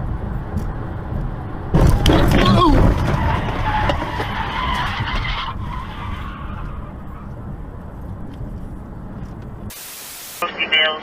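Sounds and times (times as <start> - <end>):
low vehicle rumble: 0.0 - 9.7
car tyres skidding: 1.7 - 7.7.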